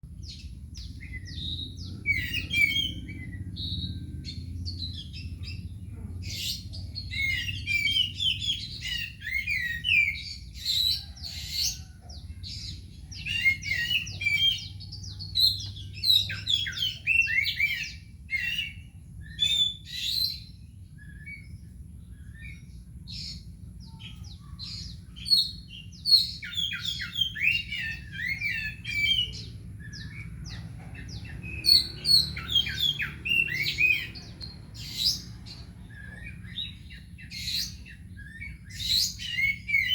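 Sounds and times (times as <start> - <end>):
steady low hum: 0.0 - 39.9
bird singing whistled phrases: 6.5 - 11.1, 13.2 - 21.6, 25.2 - 30.3, 35.9 - 39.9.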